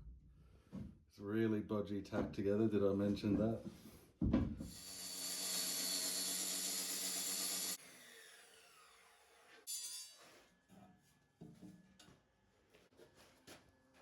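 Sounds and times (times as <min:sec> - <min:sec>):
power tool whining: 0:04.7 - 0:08.4.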